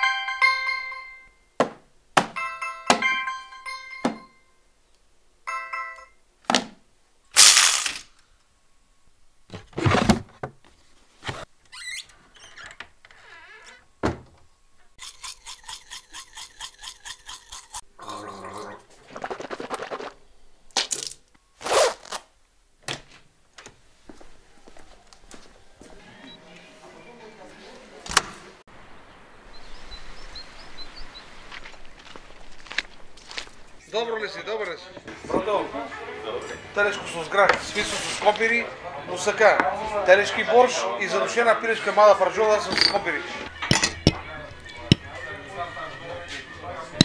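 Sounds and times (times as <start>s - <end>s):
ringing chime-like tones: 0.0s - 1.6s, 2.4s - 4.7s, 5.4s - 6.3s.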